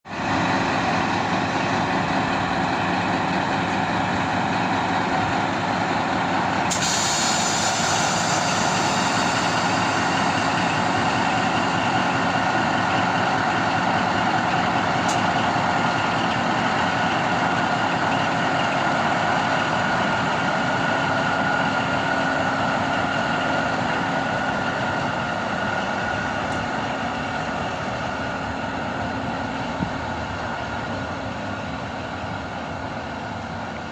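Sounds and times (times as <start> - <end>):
locomotive engine running: 0.1 - 33.9
hiss: 6.7 - 11.2.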